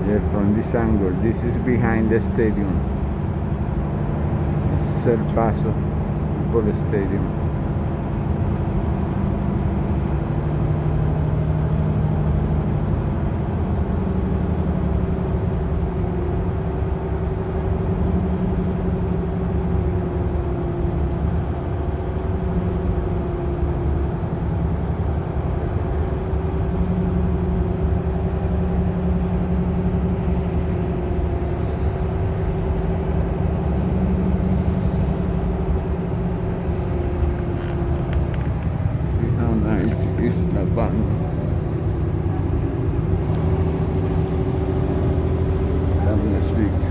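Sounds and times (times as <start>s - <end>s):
bus engine humming: 0.0s - 46.9s.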